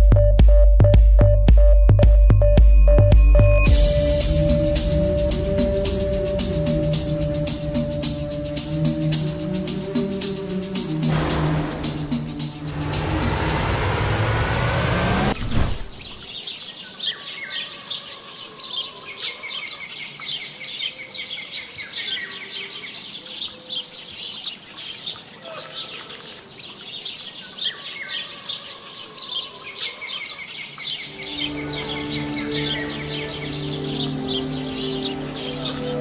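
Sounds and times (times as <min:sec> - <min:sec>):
small birds chirping: 0:15.8 - 0:36.0
soft music with held notes: 0:31.1 - 0:36.0.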